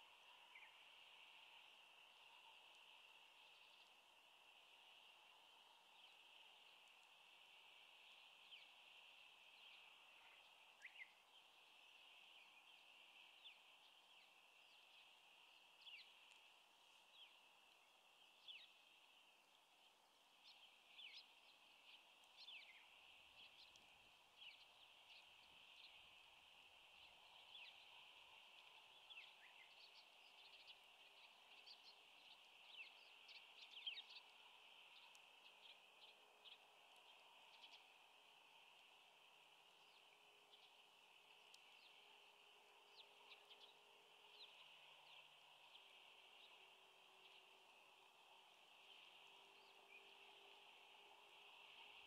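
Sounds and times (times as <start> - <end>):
small birds chirping: 0.0 - 52.0
steady high hiss: 0.0 - 52.0.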